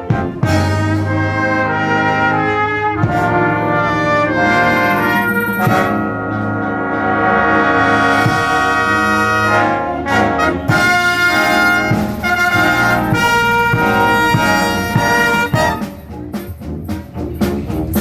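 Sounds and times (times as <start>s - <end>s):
brass chords: 0.0s - 18.0s
concert band playing: 0.0s - 18.0s.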